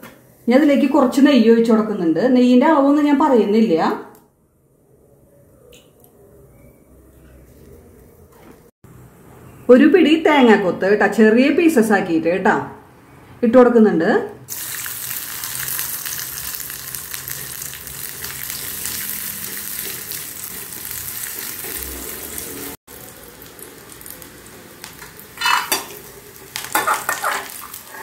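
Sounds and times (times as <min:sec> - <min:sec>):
food sizzling in hot oil: 0:14.5 - 0:28.0
metal ladle scraping a pan: 0:25.4 - 0:26.0.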